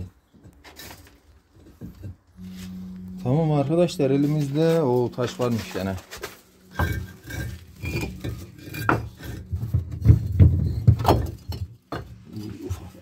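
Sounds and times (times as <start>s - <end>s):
stones knocking and clinking: 6.7s - 12.2s.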